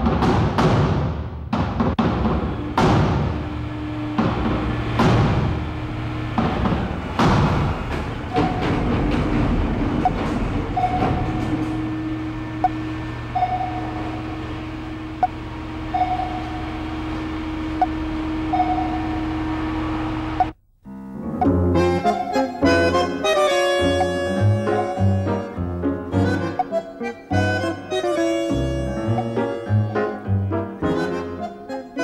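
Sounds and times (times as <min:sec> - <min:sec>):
steady mechanical rumble: 0:02.0 - 0:20.6
music with reedy notes: 0:20.9 - 0:32.0.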